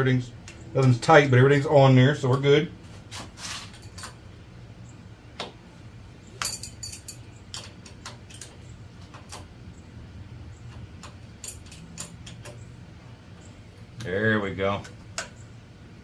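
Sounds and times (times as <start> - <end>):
low shop hum: 0.0 - 16.0
metallic clicks of hand tools: 11.0 - 12.6.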